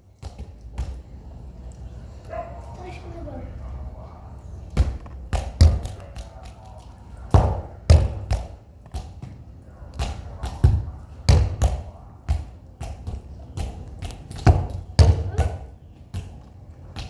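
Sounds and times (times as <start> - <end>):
ball kicked and bouncing: 0.2 - 1.1, 4.7 - 6.6, 7.3 - 17.0.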